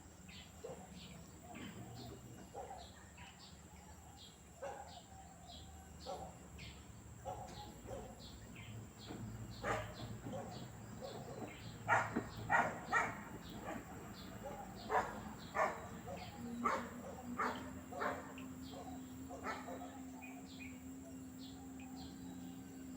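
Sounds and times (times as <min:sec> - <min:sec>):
birds chirping: 0:00.0 - 0:22.9
steady low motor hum: 0:00.0 - 0:22.9
dog barking: 0:00.6 - 0:01.0, 0:02.5 - 0:03.3, 0:04.6 - 0:05.1, 0:06.0 - 0:06.4, 0:07.2 - 0:08.3, 0:09.6 - 0:20.2.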